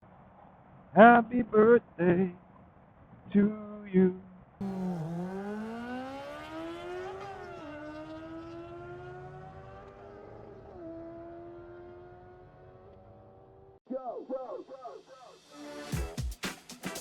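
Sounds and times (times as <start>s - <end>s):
motorcycle engine accelerating: 4.6s - 13.8s.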